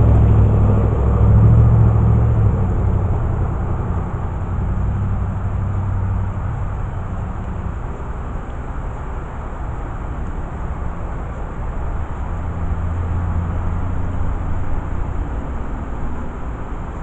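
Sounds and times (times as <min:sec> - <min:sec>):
background rumble: 0:00.0 - 0:09.4
vehicle rumble: 0:00.0 - 0:17.0.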